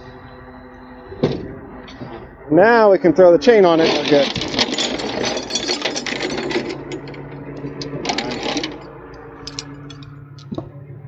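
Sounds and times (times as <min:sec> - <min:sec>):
engine idling: 0:00.0 - 0:11.0
tow chain rattling: 0:03.4 - 0:10.6.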